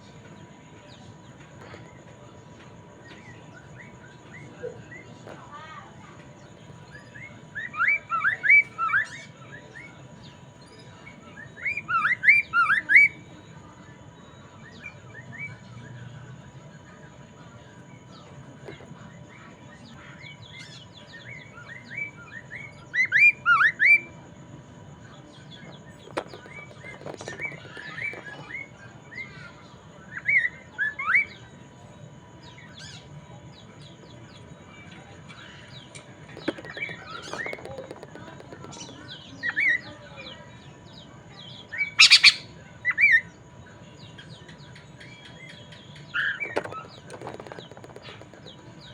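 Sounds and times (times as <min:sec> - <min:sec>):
soft bird chirps: 0:00.0 - 0:48.9
bird singing whistled phrases: 0:41.8 - 0:43.3.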